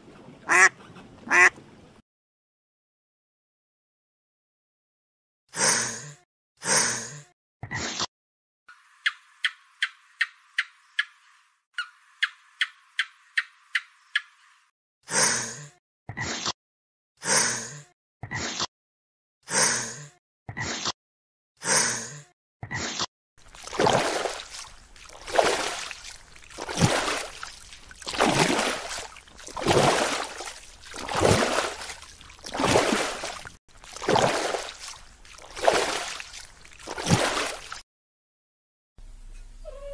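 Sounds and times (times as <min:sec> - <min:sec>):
rushing water: 0:23.4 - 0:37.8.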